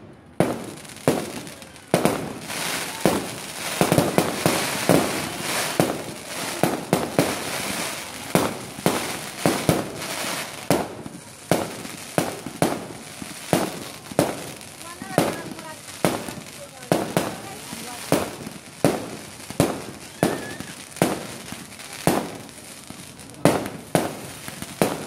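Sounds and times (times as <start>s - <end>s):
fireworks bangs: 0.0s - 25.0s
fireworks crackling: 0.0s - 25.0s.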